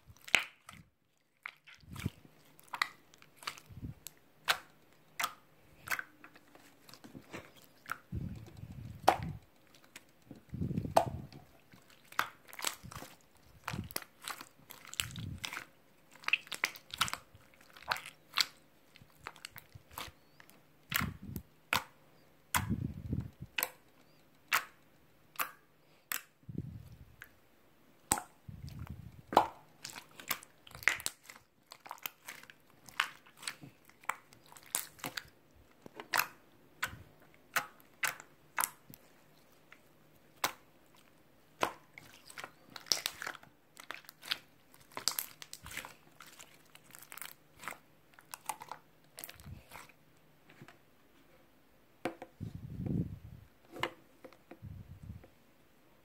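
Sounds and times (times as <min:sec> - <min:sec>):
dull low thumps: 0:52.4 - 0:53.4.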